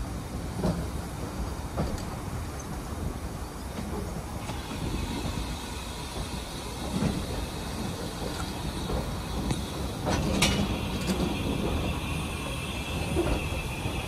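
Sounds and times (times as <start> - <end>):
train wheels rumbling on rail: 0.0 - 14.0
sharp rail clacks: 3.8 - 14.0.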